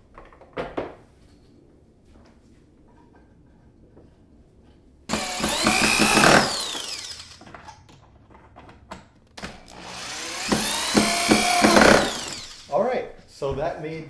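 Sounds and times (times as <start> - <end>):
power drill driving screws: 5.1 - 7.7, 9.4 - 12.8.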